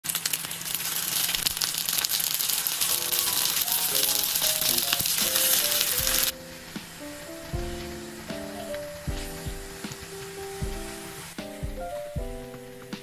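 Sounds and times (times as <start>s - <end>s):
food sizzling in a pan: 0.0s - 13.0s
light background music: 2.9s - 13.0s.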